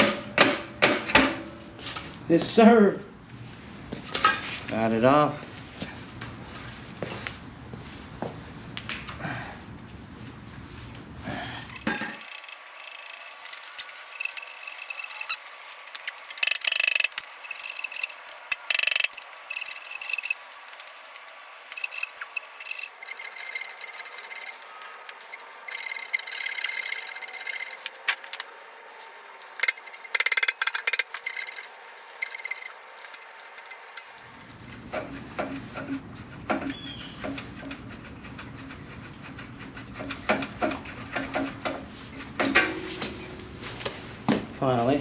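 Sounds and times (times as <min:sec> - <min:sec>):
metal scraping and squealing: 0:11.5 - 0:34.8.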